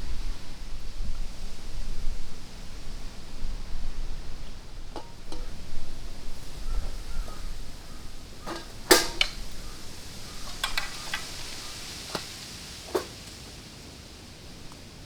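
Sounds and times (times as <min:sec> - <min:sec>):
faint steady hiss: 0:00.0 - 0:15.0
sharp knocks and clicks: 0:08.4 - 0:09.7, 0:10.4 - 0:12.3.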